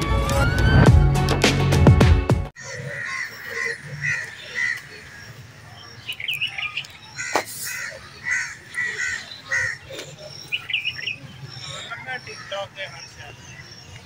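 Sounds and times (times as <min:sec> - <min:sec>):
birds calling: 0:02.6 - 0:14.0
higher bird chirps: 0:02.6 - 0:14.0.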